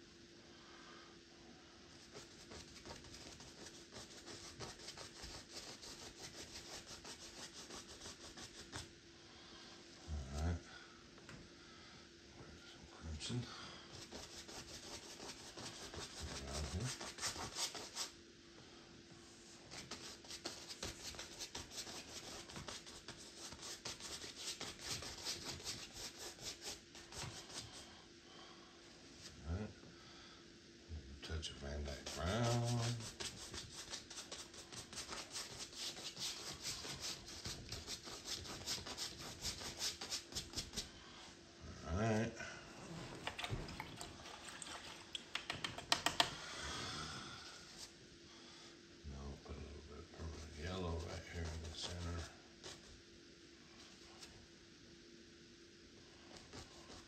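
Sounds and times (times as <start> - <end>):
paintbrush scrubbing: 1.9 - 8.9, 13.9 - 18.1, 19.7 - 27.9, 31.8 - 41.0, 56.3 - 57.0.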